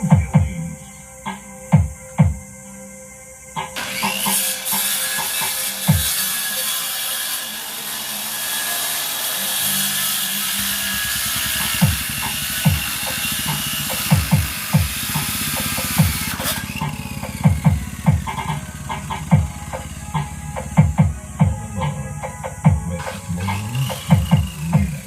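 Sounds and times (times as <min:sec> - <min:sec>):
bass-heavy music through subwoofer: 0:00.0 - 0:00.9, 0:11.7 - 0:25.0.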